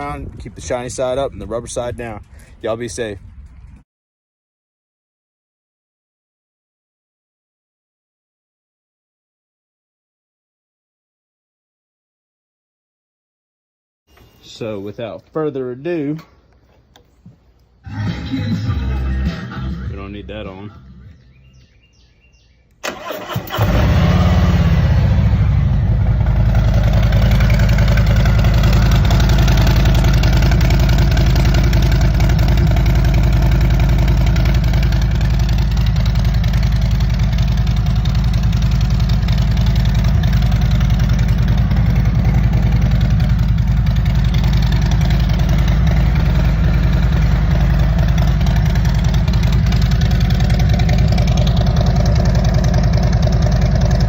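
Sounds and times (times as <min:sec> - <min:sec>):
motorcycle starting and idling: 0:22.8 - 0:54.0.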